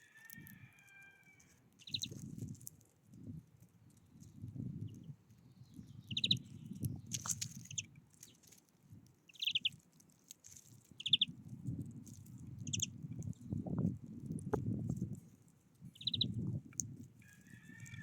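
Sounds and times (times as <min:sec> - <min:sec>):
low rustling noise: 0:01.3 - 0:18.0
small bird trilling calls: 0:01.8 - 0:02.2, 0:05.9 - 0:06.6, 0:07.6 - 0:07.9, 0:09.3 - 0:09.8, 0:11.0 - 0:11.3, 0:12.6 - 0:12.9, 0:16.0 - 0:16.4.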